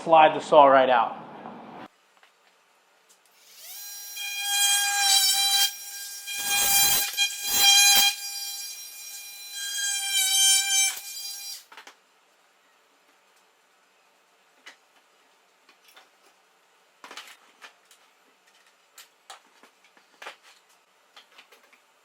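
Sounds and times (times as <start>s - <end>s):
oscillating multi-tool whining: 3.4s - 11.6s.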